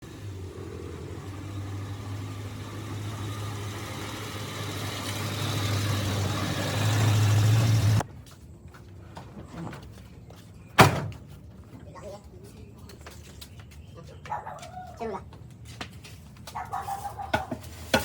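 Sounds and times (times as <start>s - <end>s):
electric motor humming: 0.0s - 8.0s.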